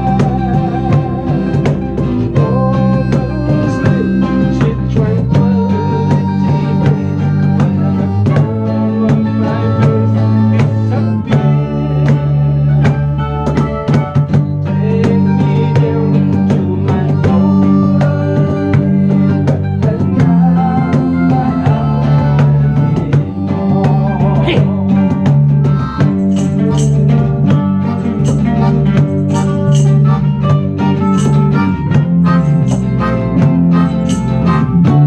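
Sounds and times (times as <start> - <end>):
band playing: 0.0 - 35.0
drums: 0.0 - 35.0
guitar: 0.0 - 35.0
percussion strikes: 0.0 - 35.0.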